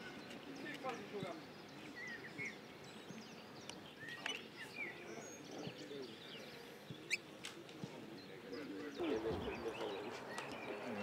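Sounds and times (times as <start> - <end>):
faint outdoor ambience: 0.0 - 11.0
birds chirping: 8.2 - 11.0.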